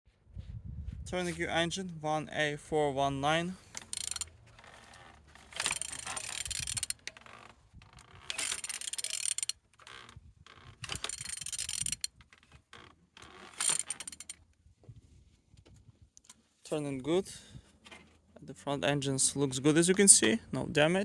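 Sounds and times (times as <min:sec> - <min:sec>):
engine internals clicking and whirring: 0:01.4 - 0:14.6.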